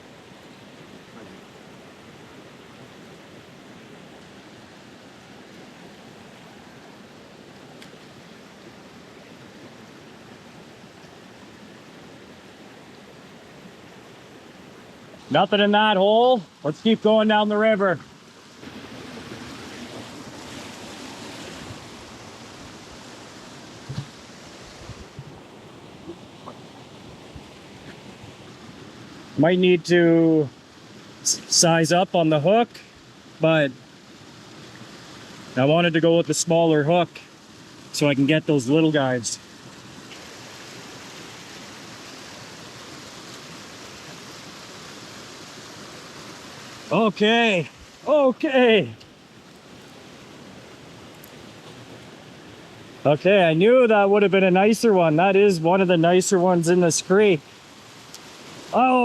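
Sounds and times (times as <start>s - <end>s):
river flowing: 0.0s - 59.0s.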